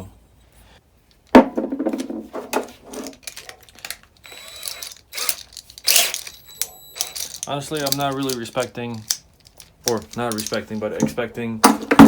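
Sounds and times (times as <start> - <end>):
tools clinking on a workbench: 2.9 - 12.0.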